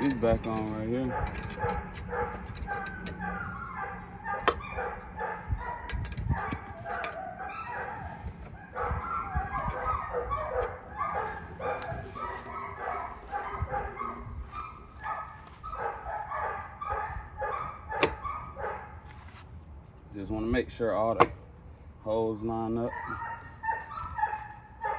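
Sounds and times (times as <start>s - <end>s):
dog whining and yipping: 1.1s - 18.8s, 22.8s - 24.9s.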